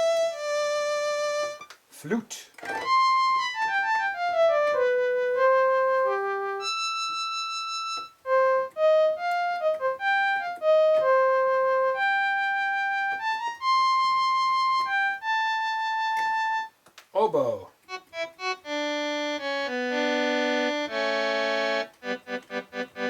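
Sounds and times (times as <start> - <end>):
synthesizer flute melody: 0.0 - 1.7, 2.7 - 16.7.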